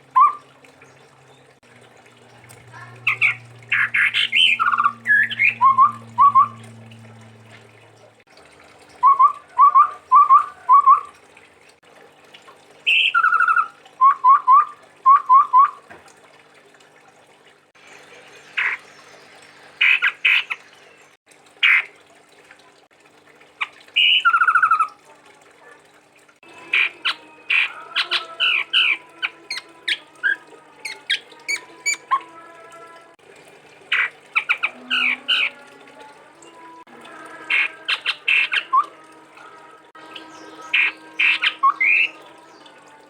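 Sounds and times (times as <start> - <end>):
low steady hum: 0.0 - 21.2
bird singing whistled notes: 3.1 - 6.6.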